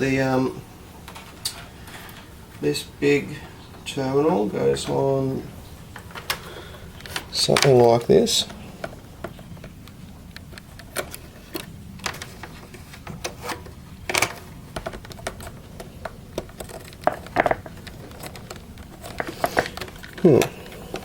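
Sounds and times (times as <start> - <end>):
plastic parts clicking and tapping: 6.0 - 21.0.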